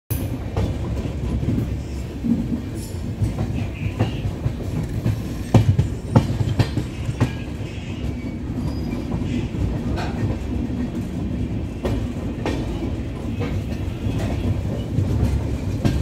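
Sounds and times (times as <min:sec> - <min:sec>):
train wheels rumbling on rails: 0:00.1 - 0:16.0
wheels clacking over rail joints: 0:00.1 - 0:16.0.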